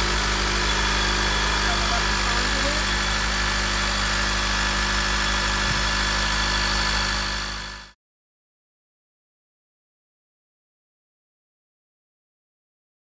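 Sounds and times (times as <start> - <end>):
car engine idling: 0.0 - 7.5.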